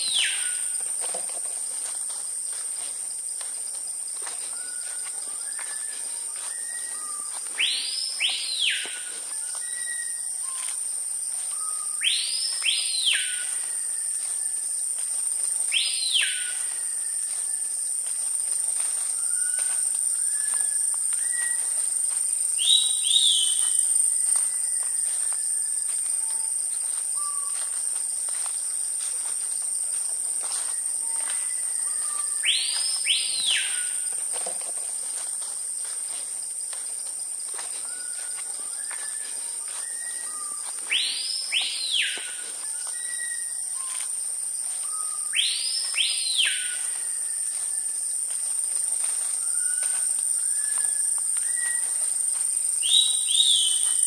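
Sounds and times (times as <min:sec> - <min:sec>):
insect drone: 0:00.0 - 0:54.0
birds chirping: 0:04.4 - 0:14.4, 0:37.8 - 0:47.7
bird whistled call: 0:04.5 - 0:10.8, 0:11.5 - 0:14.1, 0:15.7 - 0:17.2, 0:19.1 - 0:21.8, 0:22.6 - 0:25.1, 0:31.0 - 0:34.1, 0:37.9 - 0:44.1, 0:44.8 - 0:47.5, 0:49.3 - 0:52.0, 0:52.8 - 0:54.0.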